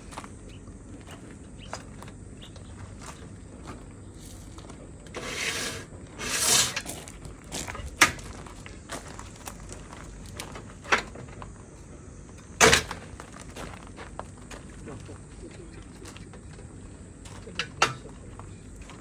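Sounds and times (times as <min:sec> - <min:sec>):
rubbing and scraping: 0:05.2 - 0:07.1.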